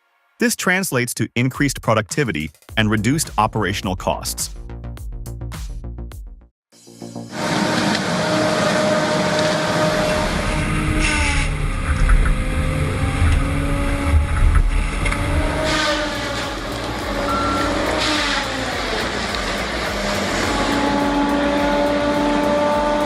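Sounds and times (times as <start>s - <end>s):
heavy machine engine running: 7.2s - 23.0s.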